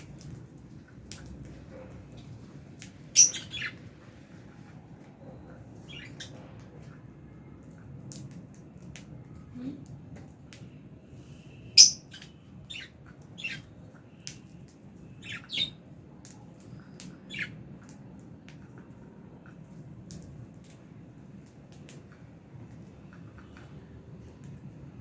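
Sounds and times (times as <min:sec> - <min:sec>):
birds chirping: 0:02.1 - 0:03.9, 0:05.8 - 0:06.4, 0:11.7 - 0:14.4, 0:15.0 - 0:15.8, 0:16.6 - 0:17.6.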